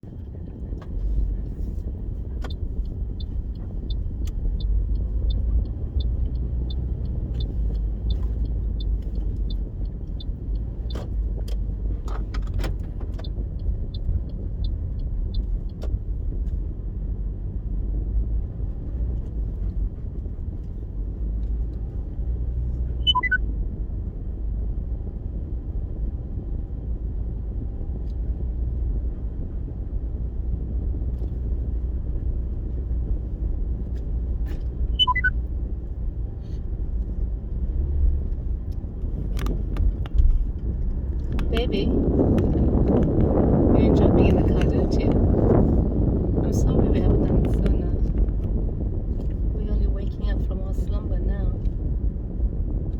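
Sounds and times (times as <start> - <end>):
car engine rumble inside cabin: 0.0 - 52.9
regular ticking: 2.4 - 15.9.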